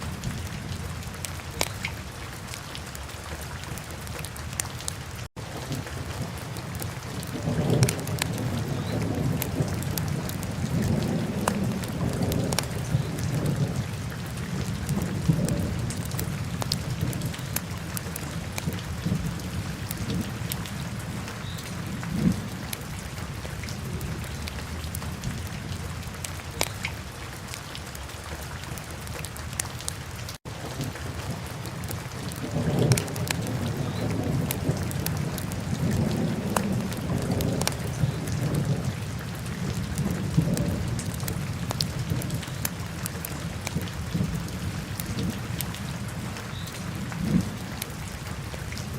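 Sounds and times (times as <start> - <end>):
fire crackling and popping: 1.6 - 1.8, 6.6 - 13.6, 14.9 - 20.7, 31.7 - 38.4.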